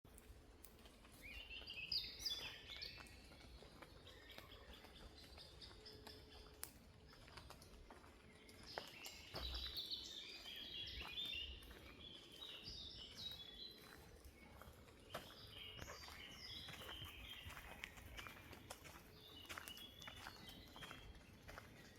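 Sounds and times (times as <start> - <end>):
faint ticks and clicks: 0.1 - 1.5, 2.7 - 9.7
songbirds chirping: 0.1 - 21.9.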